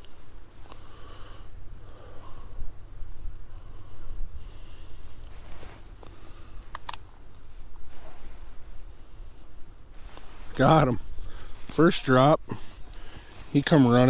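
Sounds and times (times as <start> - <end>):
sharp clicks: 6.7 - 7.0
person breathing and sniffing: 12.4 - 13.6.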